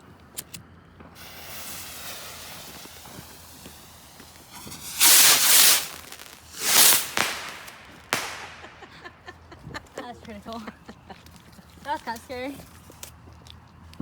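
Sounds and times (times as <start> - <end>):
firework fuse hissing: 0.4 - 9.2
firework rushing burst: 1.0 - 9.2.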